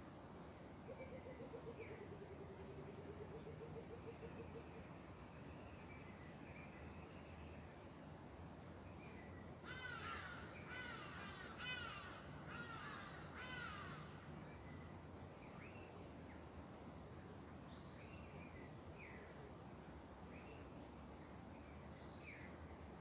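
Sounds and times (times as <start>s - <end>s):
bird harsh calls: 9.7s - 14.2s.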